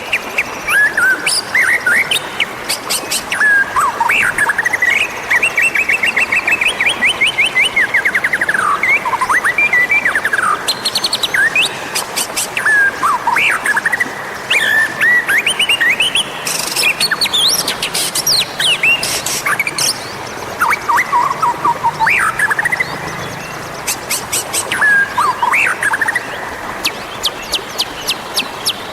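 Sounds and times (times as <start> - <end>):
songbird singing whistled phrases: 20.6 - 23.0, 23.9 - 26.4.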